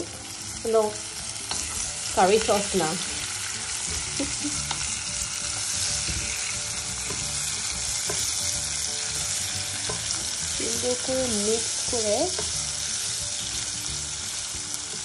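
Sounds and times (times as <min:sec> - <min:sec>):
vegetables sizzling in hot oil: 0:00.0 - 0:15.0
wooden spatula knocking on pan: 0:05.9 - 0:08.5, 0:09.1 - 0:10.2.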